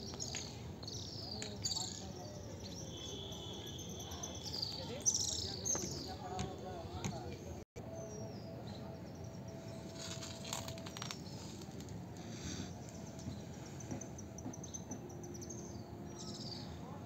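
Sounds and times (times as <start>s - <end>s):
birds chirping: 0.0s - 17.0s
steady background noise: 0.0s - 17.0s.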